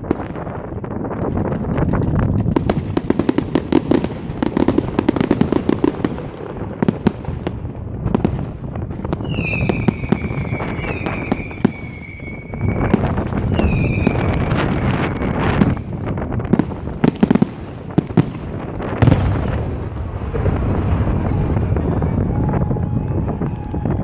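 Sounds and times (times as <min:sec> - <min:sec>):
fireworks crackling and banging: 0:00.0 - 0:24.0
firework whistle: 0:09.2 - 0:15.9, 0:21.2 - 0:24.0.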